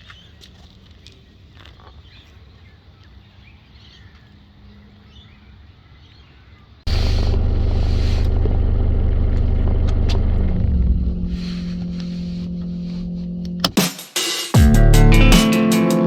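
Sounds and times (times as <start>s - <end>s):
loud steady low rumble: 6.9s - 13.7s.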